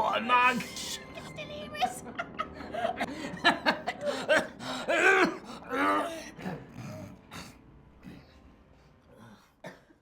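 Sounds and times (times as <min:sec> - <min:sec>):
people laughing: 0:01.8 - 0:04.6.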